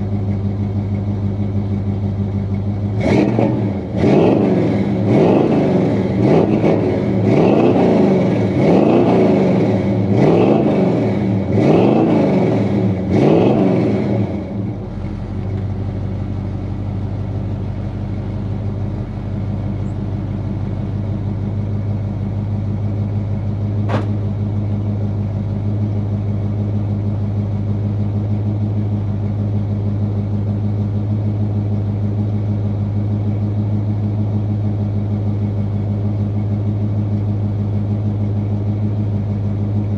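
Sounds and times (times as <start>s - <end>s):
engine idling: 0.0s - 39.9s
engine revving: 2.8s - 15.7s.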